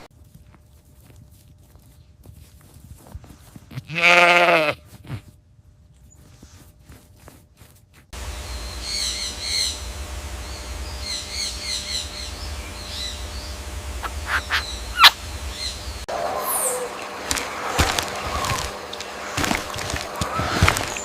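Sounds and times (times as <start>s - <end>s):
low steady rumble: 8.1s - 21.0s
bird chirping: 8.4s - 17.1s.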